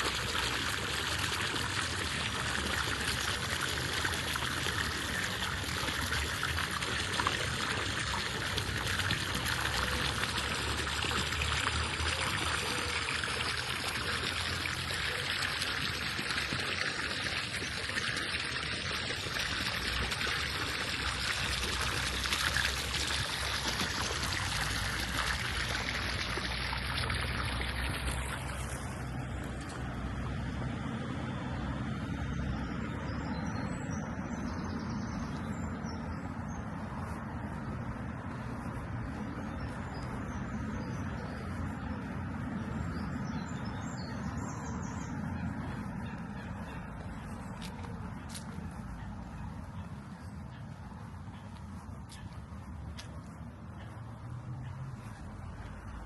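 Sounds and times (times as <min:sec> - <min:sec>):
running water rushing and splashing: 0:00.0 - 0:30.6.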